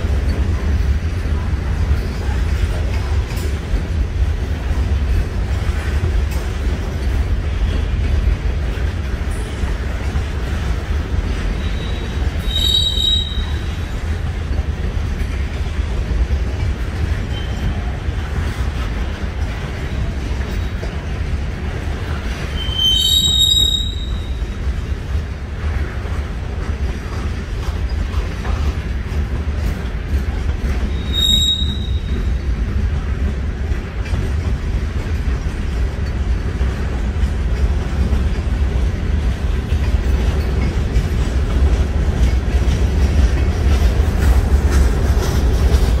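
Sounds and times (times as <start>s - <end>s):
freight train rumbling past: 0.0s - 46.0s
train wheels squealing: 11.2s - 14.2s, 16.6s - 18.8s, 22.1s - 24.9s, 29.6s - 32.6s.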